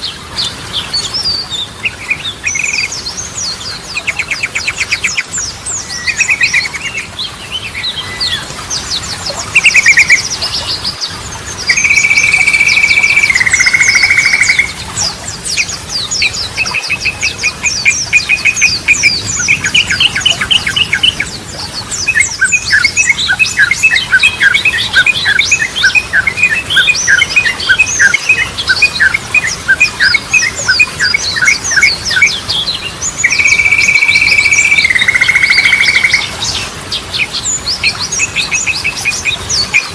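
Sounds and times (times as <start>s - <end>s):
bulbul singing: 1.3s - 36.6s
high rapid twittering: 11.6s - 14.8s, 33.2s - 36.3s.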